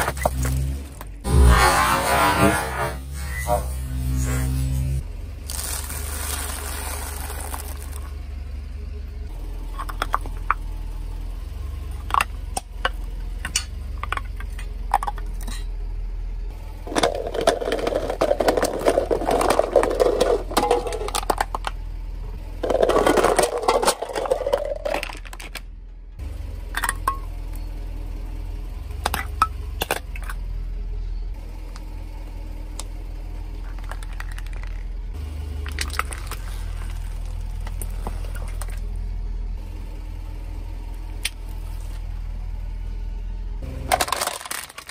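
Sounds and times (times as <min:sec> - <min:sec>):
low engine hum: 0:00.0 - 0:44.9
tyre crunching plastic toy: 0:05.5 - 0:08.1, 0:16.9 - 0:21.7, 0:22.6 - 0:25.6, 0:33.7 - 0:34.9, 0:35.6 - 0:38.8, 0:43.8 - 0:44.9.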